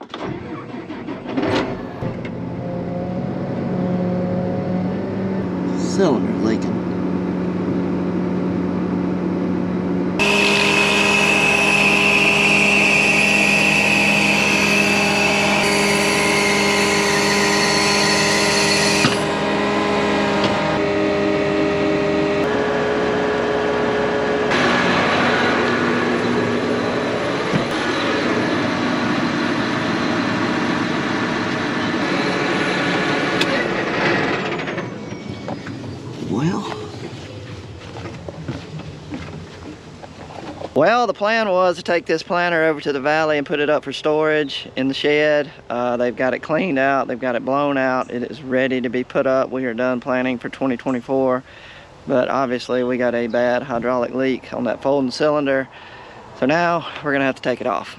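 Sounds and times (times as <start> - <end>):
engine droning with whine: 0.0 - 40.8.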